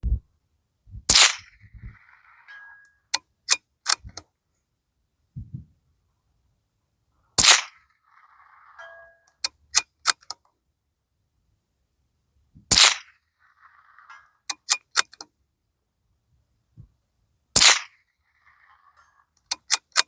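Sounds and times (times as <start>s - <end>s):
suppressed rifle shots: 1.1s - 2.8s, 7.4s - 10.4s, 12.7s - 15.2s, 17.5s - 20.0s
light metallic clicks: 19.4s - 20.0s.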